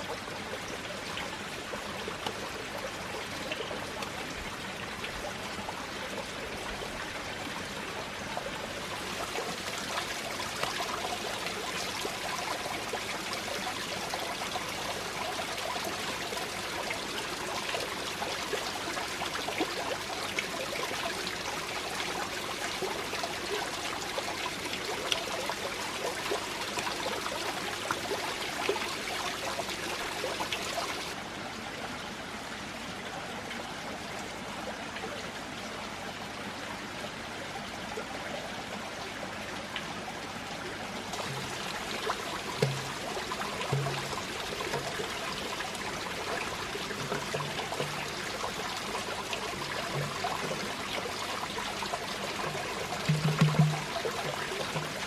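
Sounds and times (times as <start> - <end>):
water running and trickling: 0.0 - 31.2, 40.9 - 55.0
small water splashes: 40.9 - 55.0.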